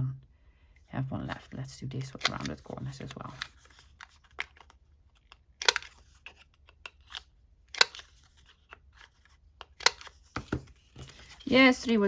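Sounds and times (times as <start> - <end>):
paper handling: 1.2 - 12.0
corner punch clicking through paper: 5.6 - 6.0, 9.7 - 10.2.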